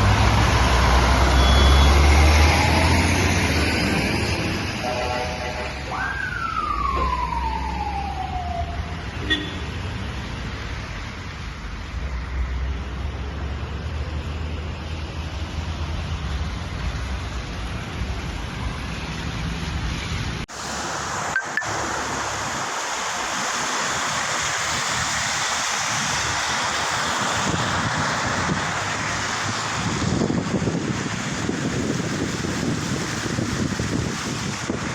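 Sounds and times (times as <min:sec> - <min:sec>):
traffic moving through floodwater: 0:00.0 - 0:34.9
siren falling in pitch: 0:05.9 - 0:09.0.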